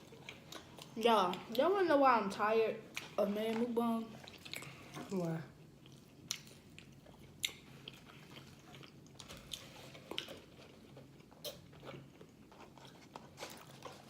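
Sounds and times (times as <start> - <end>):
chewing food: 0.0 - 1.7, 2.9 - 14.0.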